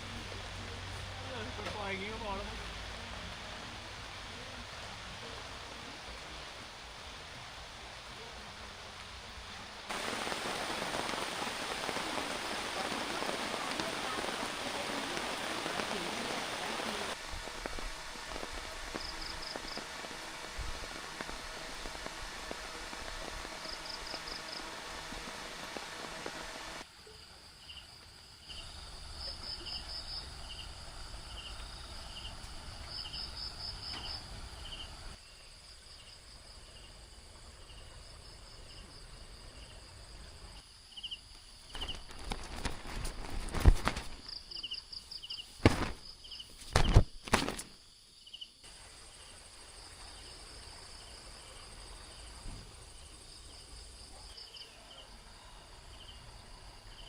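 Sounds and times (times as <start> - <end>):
rain hissing: 0.0 - 57.0
insects chirping in trills: 9.9 - 57.0.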